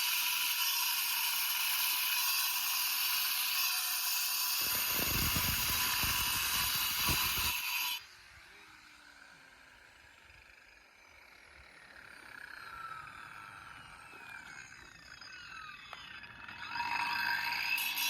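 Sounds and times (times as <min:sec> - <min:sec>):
grinder cutting concrete: 0:00.0 - 0:18.0
angle grinder whine: 0:04.4 - 0:18.0.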